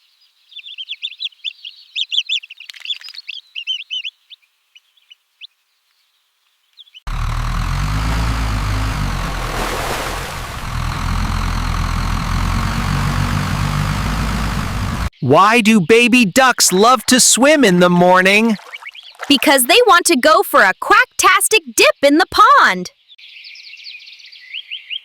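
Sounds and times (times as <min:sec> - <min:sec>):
ducklings peeping: 0:00.6 - 0:04.4
loud engine-like drone: 0:07.1 - 0:15.1.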